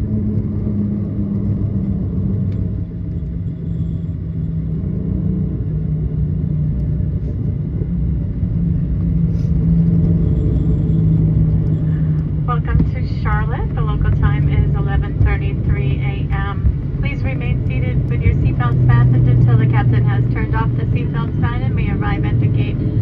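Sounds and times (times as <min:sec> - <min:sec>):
jet engines and wheels rumbling: 0:00.0 - 0:23.0.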